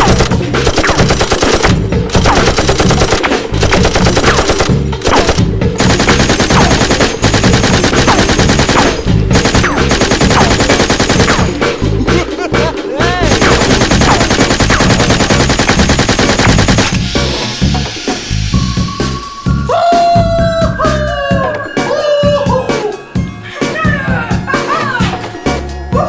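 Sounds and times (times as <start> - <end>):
machine-gun fire: 0.0 - 11.7, 13.2 - 17.0
action music: 0.0 - 26.0.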